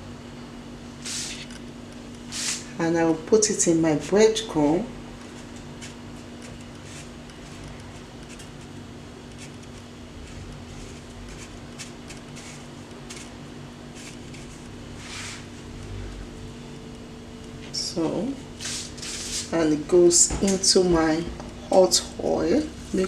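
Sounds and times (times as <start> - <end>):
steady low hum: 0.0 - 23.0
rustles and scrapes in breadcrumbs: 5.2 - 16.3, 18.6 - 19.6.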